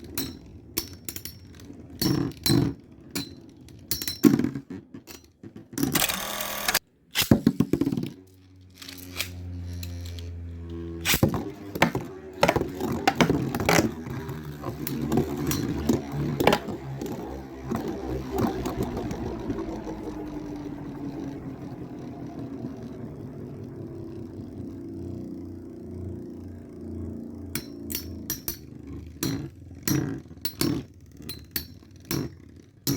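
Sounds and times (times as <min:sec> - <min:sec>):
spinning tops whirring: 0:00.0 - 0:32.9
spinning tops clashing: 0:11.0 - 0:18.7.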